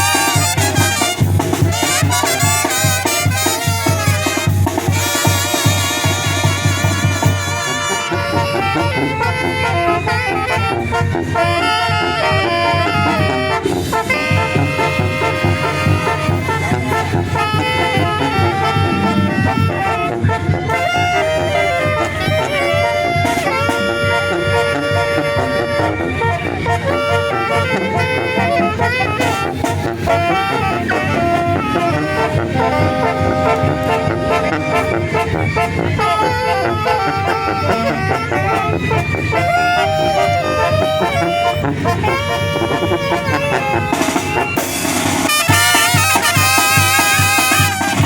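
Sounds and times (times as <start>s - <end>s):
trumpets and saxophones melody: 0.0s - 48.0s
bass drum beat: 13.2s - 22.5s.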